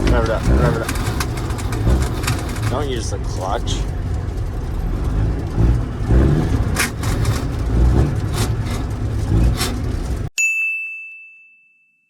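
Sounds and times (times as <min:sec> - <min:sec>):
vehicle engine revving: 0:00.0 - 0:10.3
high ding: 0:10.4 - 0:12.0.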